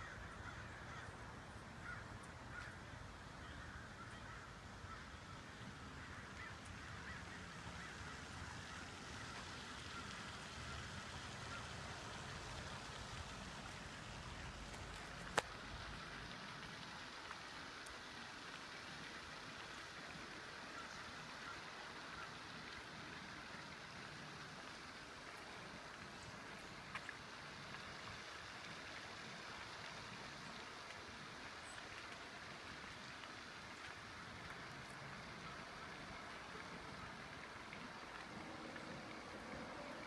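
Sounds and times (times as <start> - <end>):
faint bird calls: 0.0 - 11.8
background hiss: 0.0 - 40.0.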